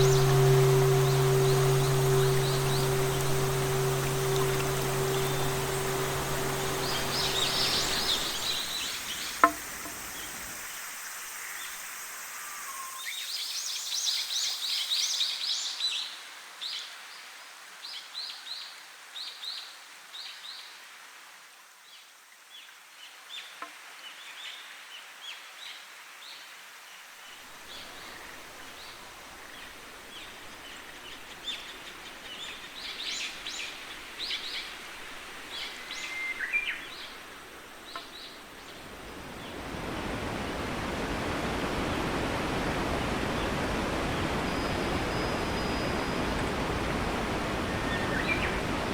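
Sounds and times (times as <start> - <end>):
faint ambient hiss: 0.0 - 12.9, 27.6 - 48.9.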